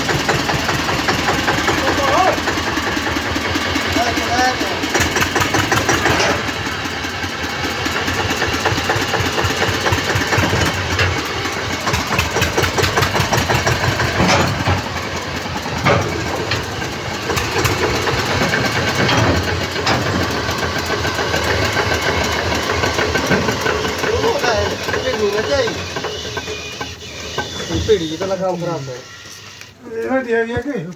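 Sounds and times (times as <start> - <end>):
tractor diesel engine running: 0.0 - 30.8
sharp clicks: 4.9 - 6.4, 17.3 - 19.3.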